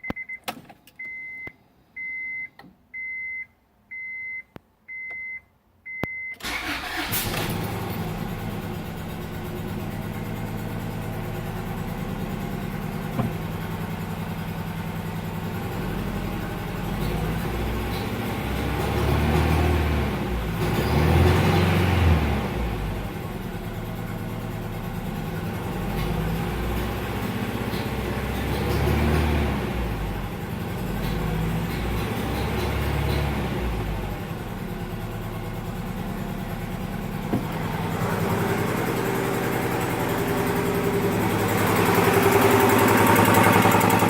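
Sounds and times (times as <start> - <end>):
car engine idling: 6.4 - 18.4, 22.6 - 44.0.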